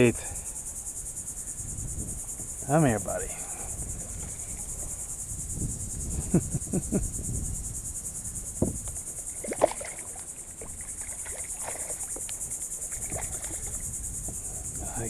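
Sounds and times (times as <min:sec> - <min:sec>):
pulsing insect buzz: 0:00.0 - 0:15.0
fish splashing in water: 0:08.9 - 0:13.9.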